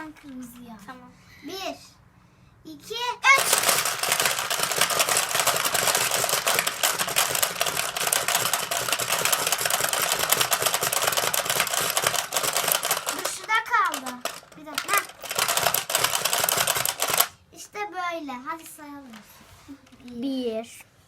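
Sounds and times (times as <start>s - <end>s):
plastic balls rattling: 3.3s - 17.4s
plastic game clattering: 3.3s - 17.4s.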